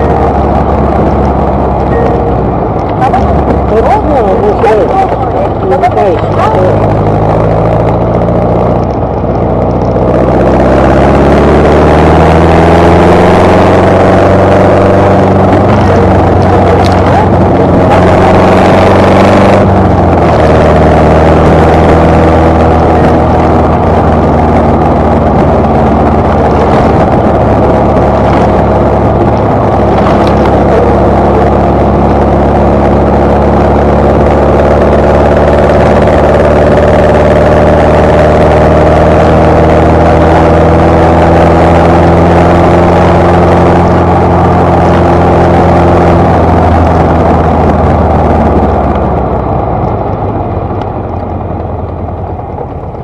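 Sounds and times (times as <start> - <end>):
car engine accelerating: 0.0 - 53.0.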